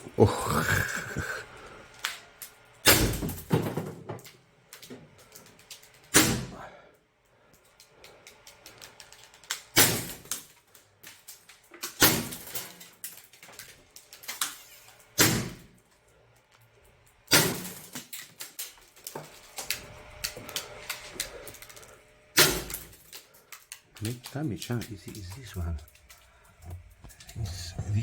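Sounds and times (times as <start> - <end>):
air revolver shots: 6.1 - 6.5, 22.4 - 22.9
pellets rattling in target cups: 17.6 - 27.4.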